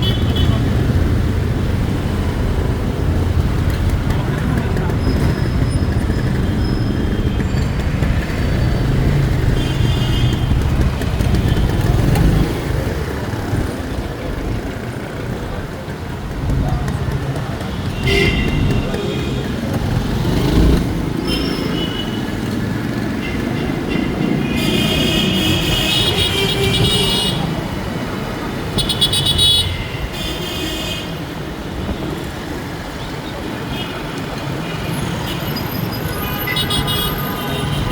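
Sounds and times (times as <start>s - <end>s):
motorbike engine rumble: 0.0s - 29.8s
road noise: 0.0s - 37.9s.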